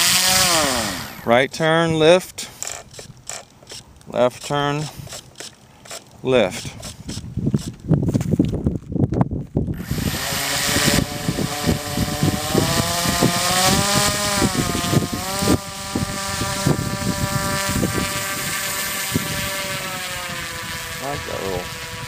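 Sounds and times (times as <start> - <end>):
model airplane motor buzzing: 0.0 - 1.4, 2.4 - 7.8, 9.7 - 22.0.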